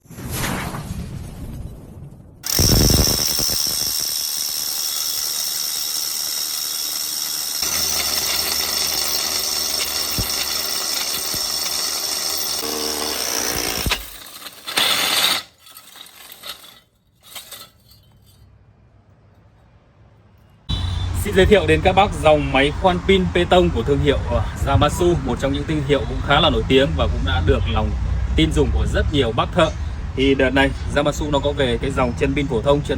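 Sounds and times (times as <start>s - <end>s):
rotary hammer drill whining: 2.4s - 18.2s.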